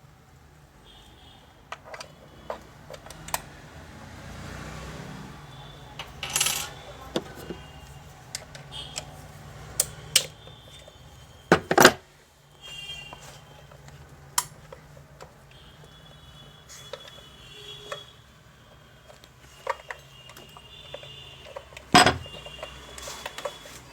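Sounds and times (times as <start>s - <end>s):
metallic clicks and clinks: 6.0s - 7.0s.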